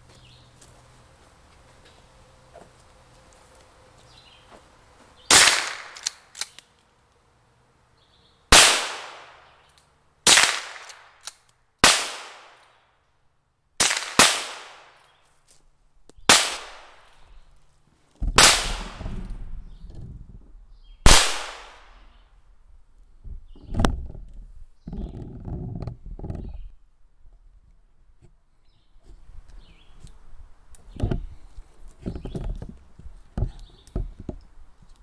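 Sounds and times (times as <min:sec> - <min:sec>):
rifle shots: 0:05.3 - 0:06.3, 0:08.5 - 0:09.4, 0:10.3 - 0:11.2, 0:11.8 - 0:12.6, 0:13.8 - 0:15.0, 0:16.3 - 0:17.1, 0:18.3 - 0:19.4, 0:21.1 - 0:22.0
rifle action clicks: 0:05.5 - 0:06.7.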